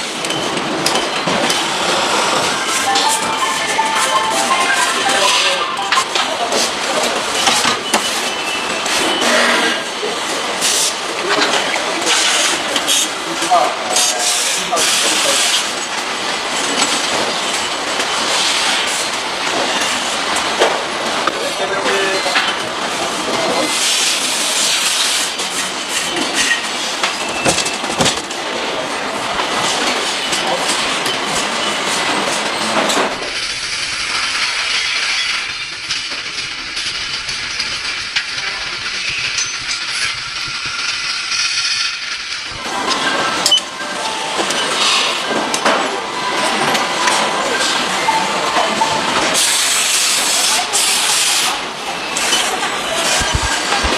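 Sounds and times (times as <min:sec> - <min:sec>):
factory machinery hiss: 0:01.6 - 0:11.1, 0:47.4 - 0:52.7
mechanical clatter: 0:33.0 - 0:43.6.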